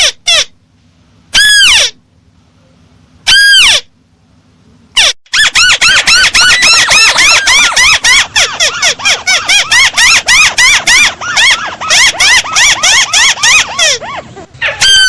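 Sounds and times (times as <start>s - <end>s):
crake chattering call: 5.0s - 14.1s.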